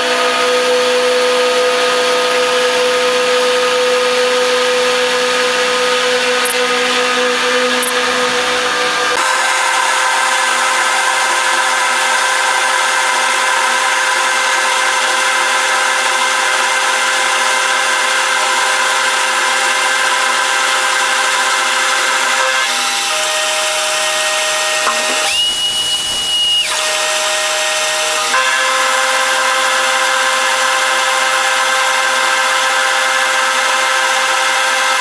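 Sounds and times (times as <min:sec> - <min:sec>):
power tool cutting steel: 0:00.0 - 0:35.0
high steady whine: 0:24.6 - 0:26.7.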